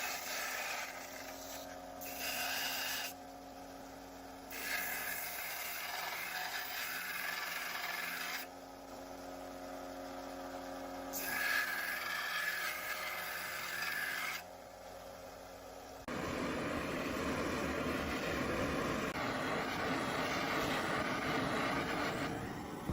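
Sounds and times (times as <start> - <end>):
steady hum: 14.4 - 22.9.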